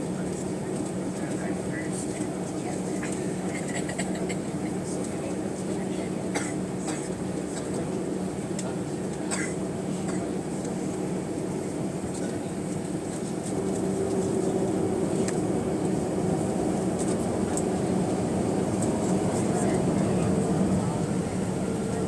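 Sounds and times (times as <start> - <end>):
airplane cabin engine drone: 0.0 - 22.0.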